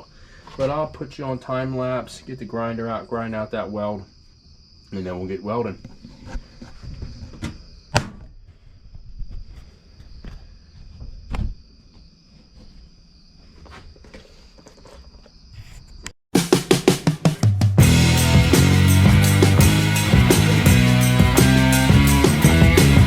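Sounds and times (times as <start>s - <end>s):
crickets chirring: 0.0s - 16.2s
music with drums: 16.4s - 23.0s.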